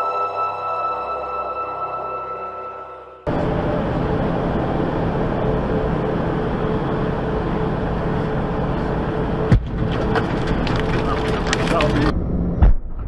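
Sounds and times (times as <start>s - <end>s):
vehicle engine and road noise: 3.3s - 13.0s.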